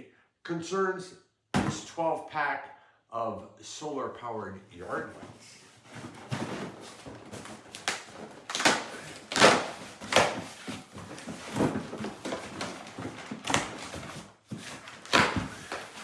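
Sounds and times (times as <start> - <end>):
packages knocking and rustling: 5.0 - 16.0.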